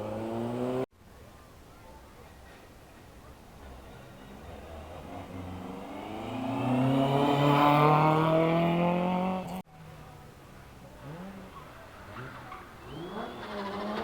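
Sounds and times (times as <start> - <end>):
rally car engine at full throttle: 0.0 - 0.8, 4.6 - 9.6, 10.8 - 14.0
faint engine revving: 10.8 - 14.0.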